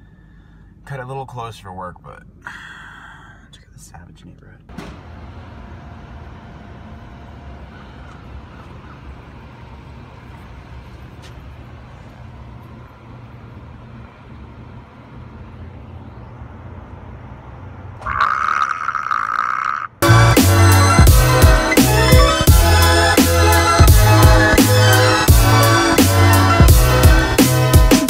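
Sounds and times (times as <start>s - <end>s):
car engine rumbling in cabin: 4.7s - 18.1s, 20.0s - 27.4s.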